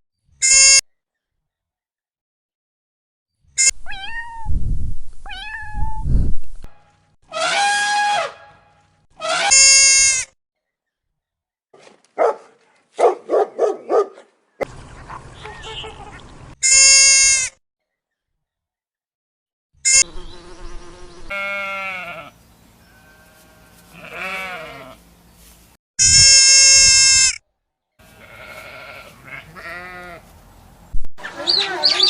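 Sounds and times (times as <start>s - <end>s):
animal calls: 31.2s - 32.0s.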